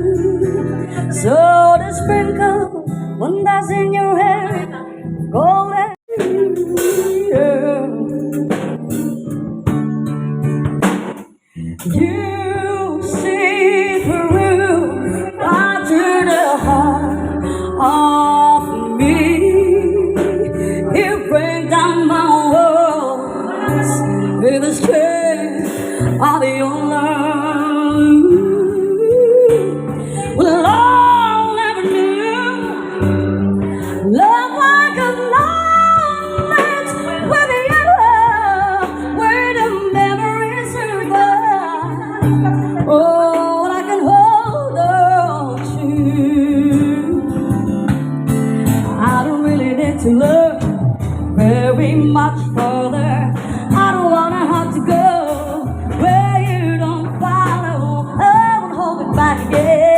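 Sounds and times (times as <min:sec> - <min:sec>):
person singing a ballad: 0:00.0 - 0:10.7, 0:11.6 - 0:59.9
guitar and bass backing music: 0:00.0 - 0:59.9.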